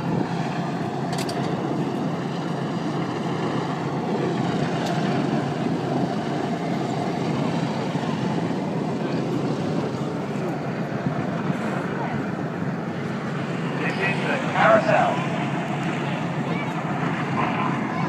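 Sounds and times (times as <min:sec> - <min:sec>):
jet engine roar: 0:00.0 - 0:18.0
faint gliding whine: 0:11.7 - 0:18.0.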